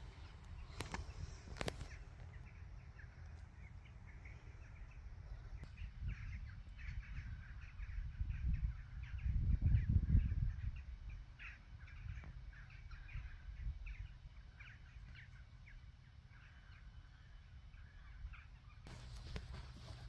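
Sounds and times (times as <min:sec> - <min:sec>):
wind rumble on microphone: 0:00.0 - 0:15.9
birds chirping: 0:00.0 - 0:20.0.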